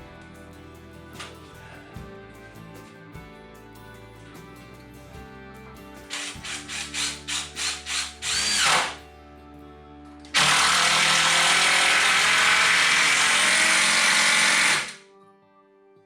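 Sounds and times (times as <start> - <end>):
cordless drill driving screws: 6.1 - 9.0, 10.4 - 15.0.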